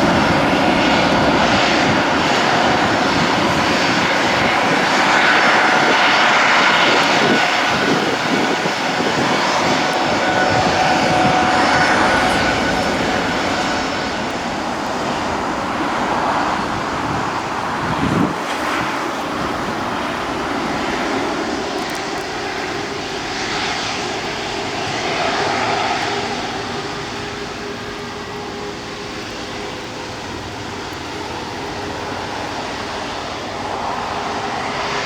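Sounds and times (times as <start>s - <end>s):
faint high whine: 0.0s - 17.8s
jet engines rushing: 0.0s - 35.0s.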